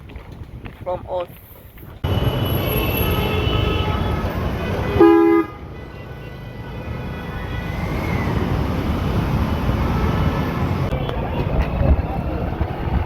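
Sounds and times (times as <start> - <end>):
road traffic rumble: 0.0 - 13.0
vehicle horn honking: 2.0 - 7.8.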